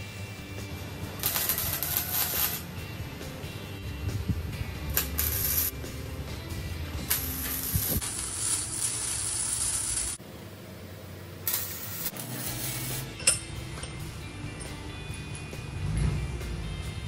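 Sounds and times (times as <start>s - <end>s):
welding arc crackling and hissing: 1.1s - 2.7s, 4.9s - 5.8s, 7.0s - 10.2s, 11.4s - 13.2s.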